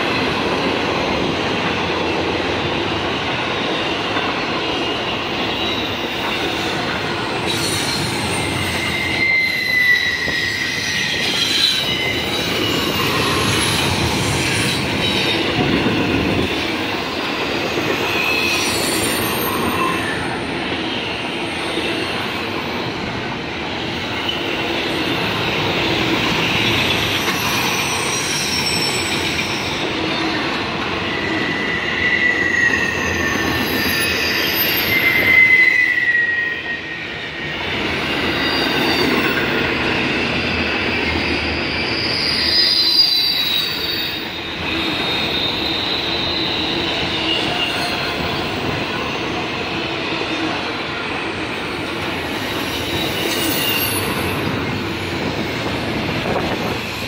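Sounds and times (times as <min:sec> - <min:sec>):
train wheels rumbling on rail: 0:00.0 - 0:57.0
wheels squealing: 0:05.5 - 0:16.7, 0:31.0 - 0:48.9, 0:52.2 - 0:55.4.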